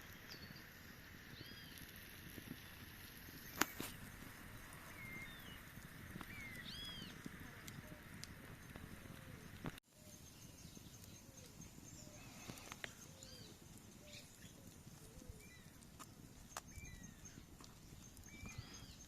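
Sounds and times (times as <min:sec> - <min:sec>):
birds chirping: 0:00.0 - 0:01.9, 0:03.3 - 0:19.0
high bird trill: 0:06.2 - 0:07.2.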